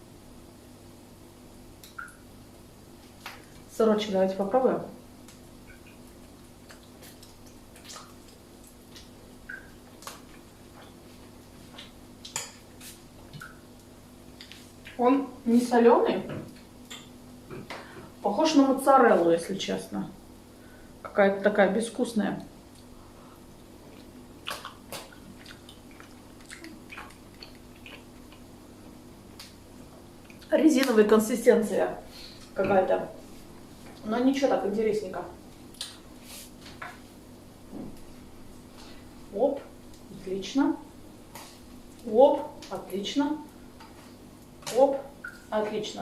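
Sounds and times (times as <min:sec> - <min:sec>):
steady low hum: 0:00.0 - 0:46.0
wet mouth chewing sounds: 0:23.8 - 0:28.5.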